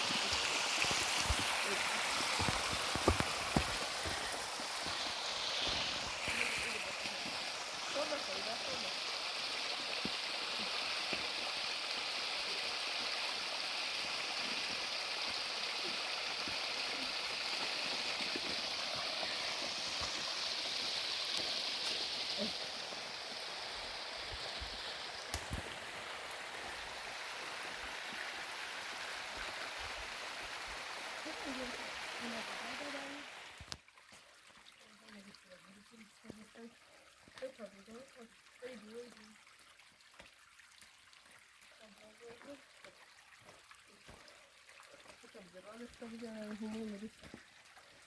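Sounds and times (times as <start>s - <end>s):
rushing water: 0.0s - 48.0s.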